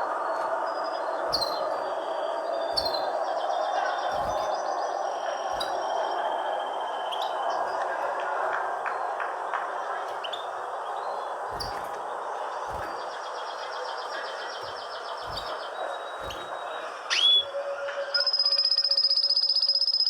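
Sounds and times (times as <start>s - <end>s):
small birds chirping and trilling: 0.0s - 20.0s
steady background noise: 0.0s - 20.0s
soft low thumps: 14.0s - 16.7s.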